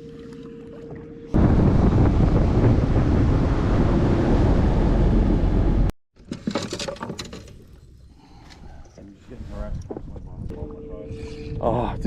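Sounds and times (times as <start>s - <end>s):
boat rushing through water: 0.0s - 5.9s
wind on microphone: 1.4s - 5.9s.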